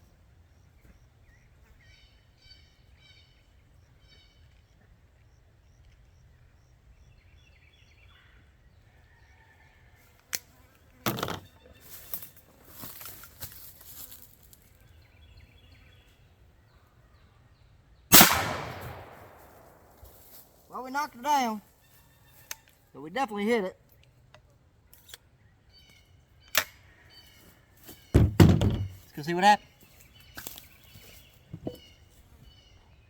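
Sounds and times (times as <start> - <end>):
gun handling noise: 11.1 - 11.4, 18.1 - 20.5
shotgun blast: 18.1 - 20.1.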